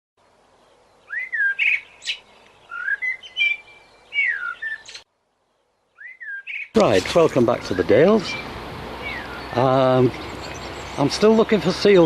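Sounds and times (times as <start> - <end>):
songbird whistling song: 0.6 - 6.8, 8.3 - 11.1.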